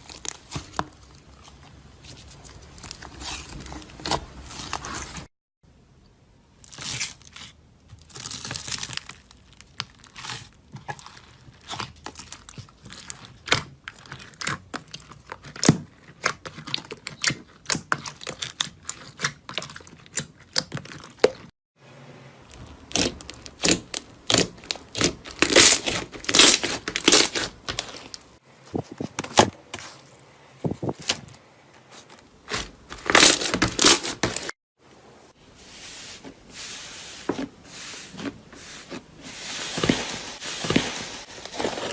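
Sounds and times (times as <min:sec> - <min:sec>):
slime crackling and popping: 0:06.7 - 0:21.3, 0:22.5 - 0:28.2.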